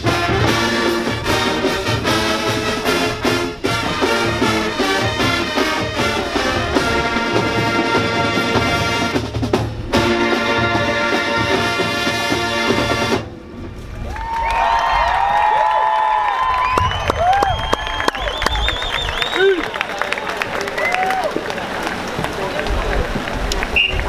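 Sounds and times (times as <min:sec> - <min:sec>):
crowd cheering: 0:00.0 - 0:09.2, 0:13.8 - 0:24.0
marching band brass and drums: 0:00.0 - 0:14.2, 0:16.6 - 0:24.0
whistles: 0:16.5 - 0:19.9, 0:23.7 - 0:24.0.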